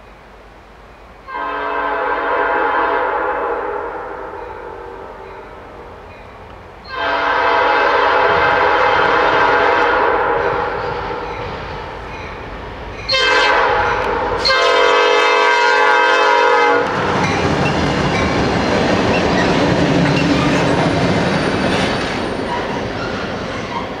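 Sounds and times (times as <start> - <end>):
train horn blasts: 1.2 - 5.9, 6.8 - 11.5, 13.1 - 17.1
locomotive engine rumbling: 4.6 - 24.0
train wheels clickety-clack: 10.4 - 14.6, 16.8 - 24.0.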